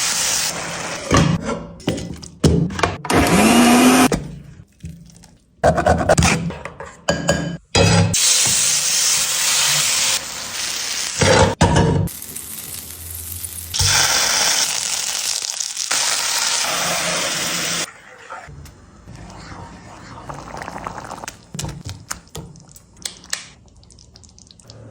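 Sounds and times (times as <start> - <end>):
food sizzling in a pan: 0.0 - 1.1, 8.2 - 17.9.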